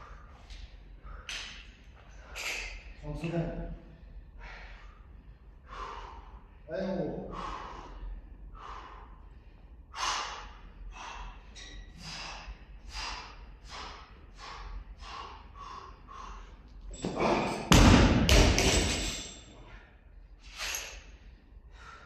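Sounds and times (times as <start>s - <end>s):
heavy rapid breathing: 3.8s - 17.6s, 19.4s - 22.0s
barbell thud and rattle: 16.9s - 19.4s.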